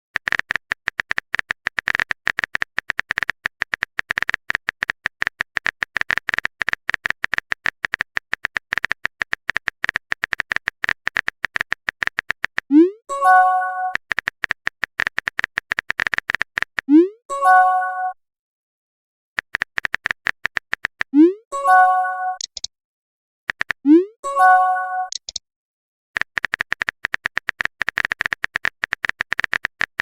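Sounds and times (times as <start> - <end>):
phone keyboard typing clicks: 0.2 - 12.7, 13.9 - 16.9, 19.4 - 21.2, 22.3 - 22.7, 23.5 - 23.9, 25.1 - 25.4, 26.2 - 30.0.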